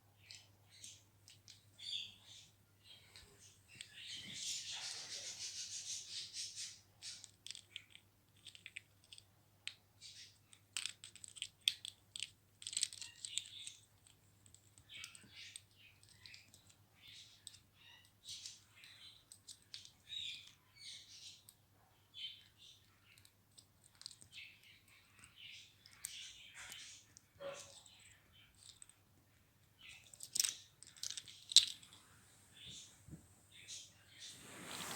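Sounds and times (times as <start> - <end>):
parrot rattling small toys: 10.1 - 16.8, 29.8 - 32.0.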